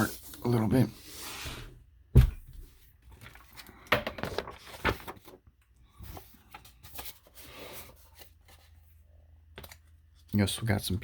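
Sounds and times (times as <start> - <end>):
paper pages turning: 3.1 - 8.9.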